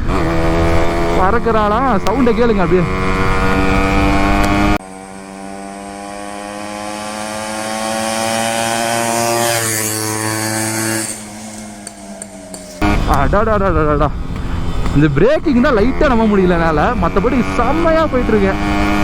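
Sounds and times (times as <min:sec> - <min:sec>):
wind on microphone: 0:00.0 - 0:04.8, 0:12.8 - 0:19.0
motorcycle engine accelerating: 0:00.0 - 0:19.0.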